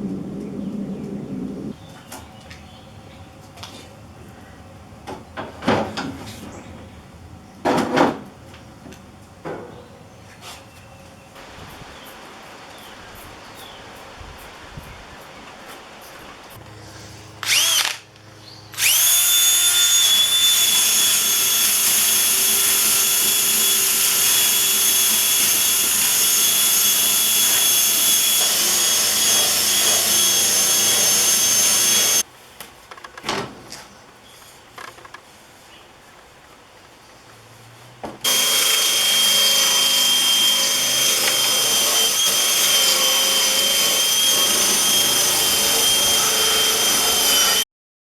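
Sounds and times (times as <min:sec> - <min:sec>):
power drill whining: 0:17.4 - 0:18.0, 0:18.8 - 0:32.2, 0:38.2 - 0:47.7.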